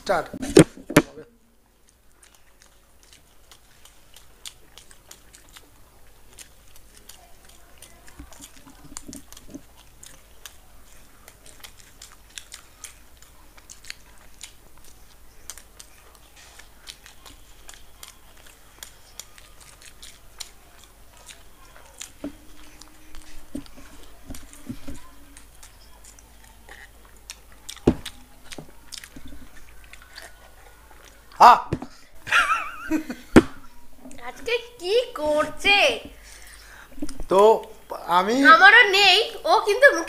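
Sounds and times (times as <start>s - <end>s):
people chewing sandwiches: 0.0s - 40.0s
wet mouth clicks: 1.8s - 31.4s.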